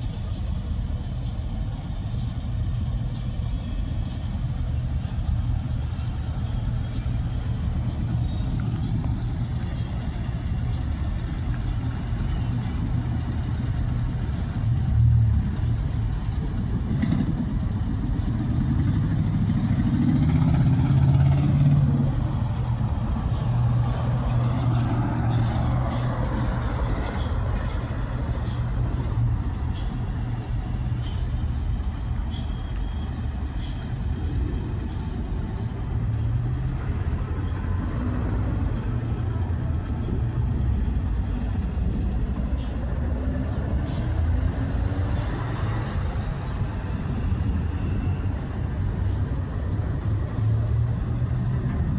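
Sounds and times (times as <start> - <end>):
car engines rumbling: 0.0 - 51.9
vehicle passing close by: 19.2 - 27.5.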